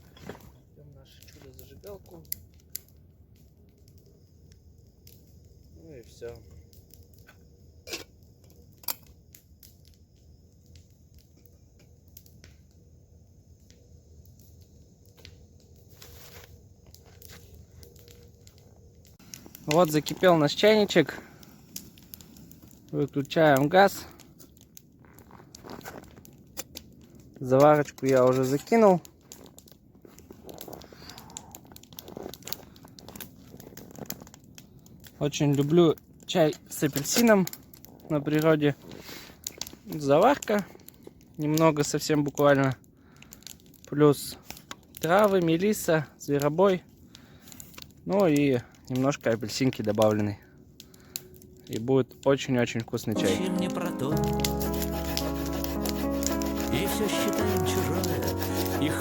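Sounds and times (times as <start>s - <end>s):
crinkling and rustling: 15.8s - 35.7s.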